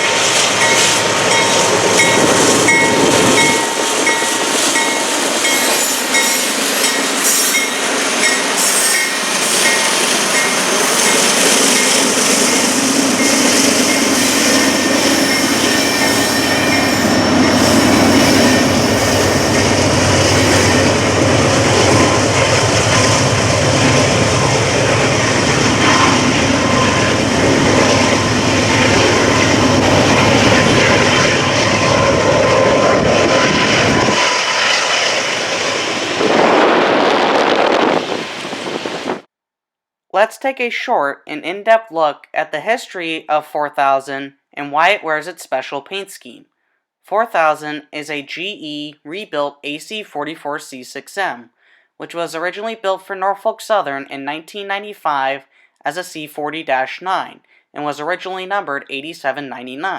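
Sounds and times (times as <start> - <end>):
freight train rumble: 0.0 - 39.3
wheel squeal: 8.4 - 11.2.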